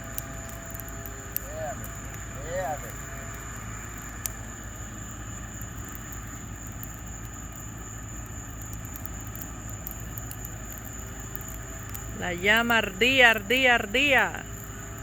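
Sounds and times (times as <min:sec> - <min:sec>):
bonfire low rumble: 0:00.0 - 0:15.0
fire crackles and pops: 0:00.0 - 0:15.0.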